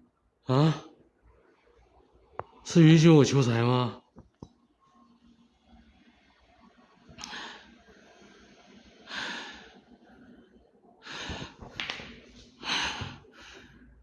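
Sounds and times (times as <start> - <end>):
man breathing and sniffing: 7.2 - 10.0, 11.0 - 14.0.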